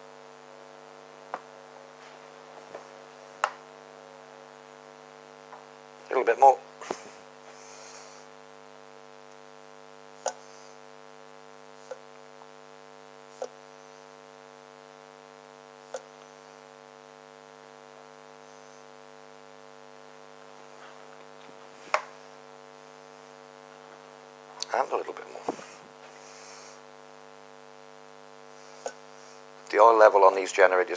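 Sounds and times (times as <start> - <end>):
electrical mains hum: 0.0 - 30.9.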